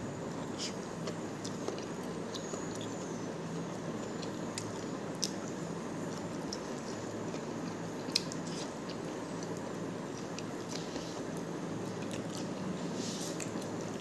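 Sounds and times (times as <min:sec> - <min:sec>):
steady background hiss: 0:00.0 - 0:14.0
person chewing food: 0:00.3 - 0:03.1, 0:06.1 - 0:12.6.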